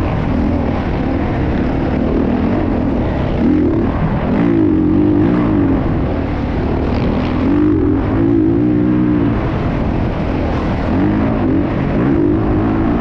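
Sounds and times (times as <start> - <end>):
dirt bike engines revving: 0.0 - 13.0
low rumble: 0.0 - 13.0.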